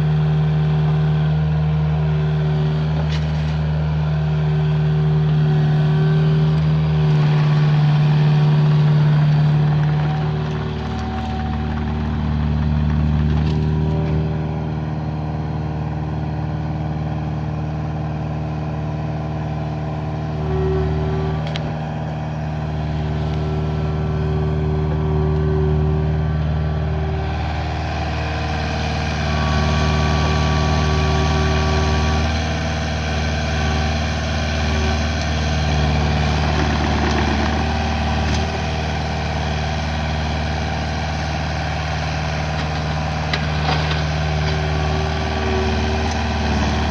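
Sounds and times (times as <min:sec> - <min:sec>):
diesel excavator engine under load: 0:00.0 - 0:46.9.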